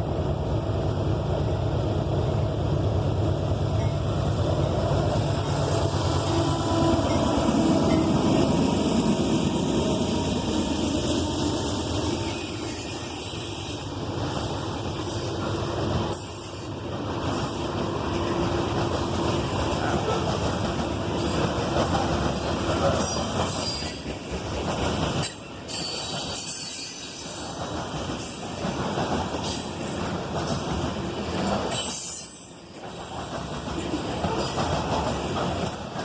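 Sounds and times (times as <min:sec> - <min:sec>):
train wheels rumbling on rail: 0:00.0 - 0:36.0
wheels clacking over rail joints: 0:15.4 - 0:36.0.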